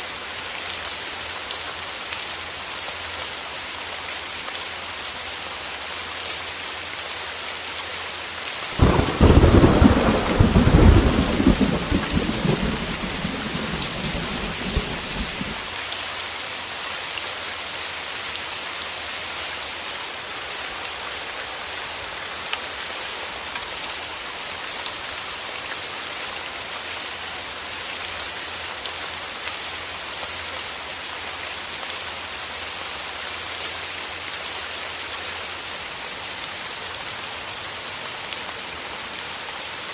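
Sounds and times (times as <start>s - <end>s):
heavy rain on a window: 0.1s - 39.9s
thunder clap rumbling: 8.8s - 15.7s.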